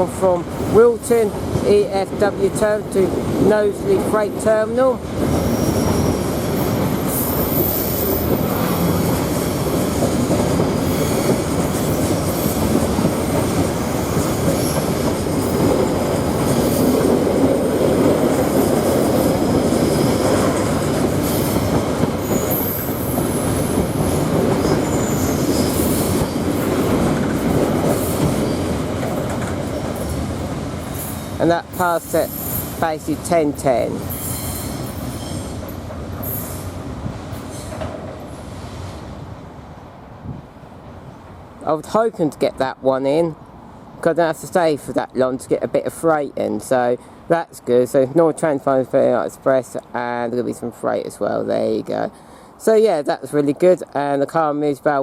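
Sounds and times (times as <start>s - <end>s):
freight wagons rumbling and clattering: 0.0s - 34.0s
high-pitched wheel squeals: 5.4s - 9.7s, 22.2s - 23.2s, 24.8s - 26.4s, 34.1s - 35.6s.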